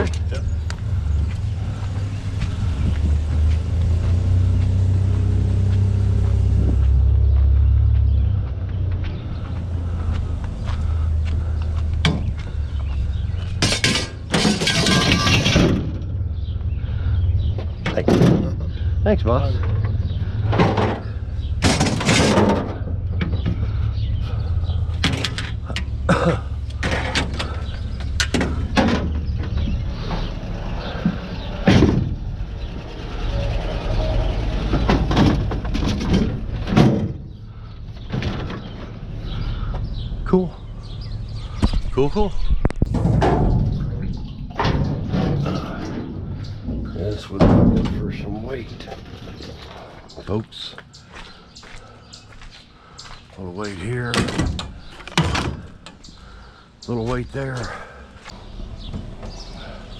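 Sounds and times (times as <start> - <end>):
vehicle engine rumbling: 0.0 - 59.9
sharp knocks and clanks: 10.6 - 16.2, 17.5 - 18.8, 19.5 - 23.9, 24.7 - 33.7, 34.5 - 39.0, 42.6 - 51.4, 52.4 - 56.0.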